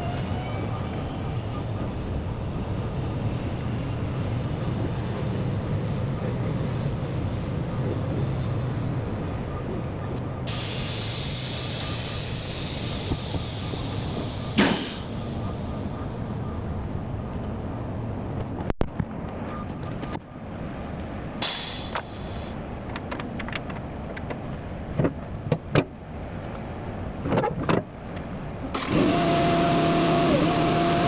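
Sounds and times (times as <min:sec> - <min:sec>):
diesel engine rumbling: 0:00.0 - 0:19.4, 0:20.4 - 0:24.1
hiss: 0:10.5 - 0:15.8, 0:21.4 - 0:22.5.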